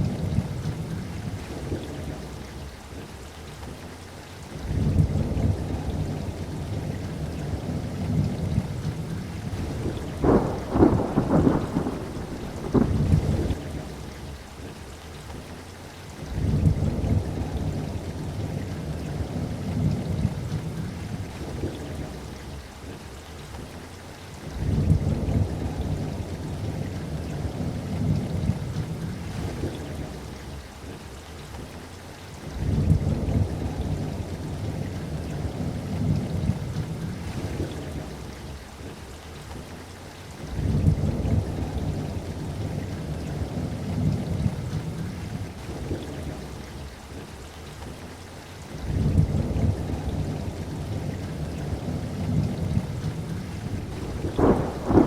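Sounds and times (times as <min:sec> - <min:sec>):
steady rain: 0:00.0 - 0:55.0
rolling thunder: 0:04.7 - 0:14.0, 0:48.8 - 0:55.0
sharp crackling thunderclap: 0:07.6 - 0:14.0, 0:48.8 - 0:55.0.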